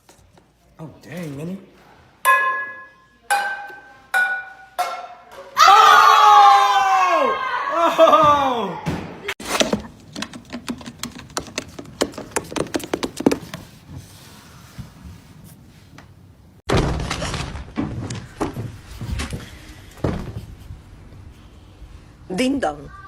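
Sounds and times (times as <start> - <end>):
rapid knocks and taps: 10.1 - 13.7
loud thumps and knocks: 20.0 - 20.5.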